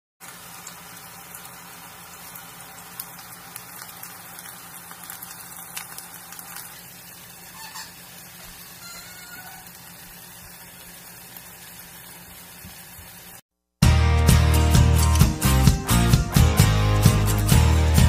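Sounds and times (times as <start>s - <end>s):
chicken sizzling in oil: 0.2s - 13.4s.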